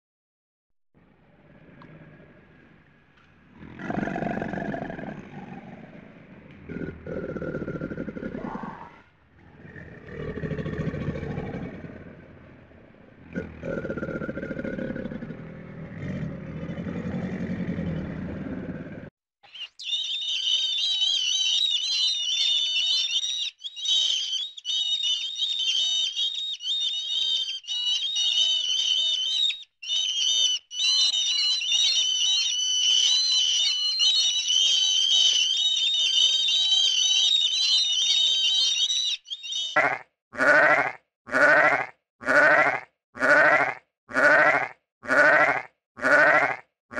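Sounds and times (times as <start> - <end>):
sheep bleating: 39.8 - 46.6.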